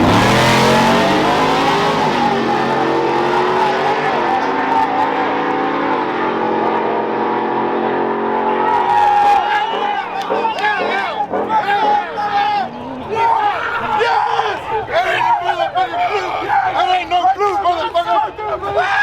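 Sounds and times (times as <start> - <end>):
truck engine accelerating hard: 0.0 - 11.8.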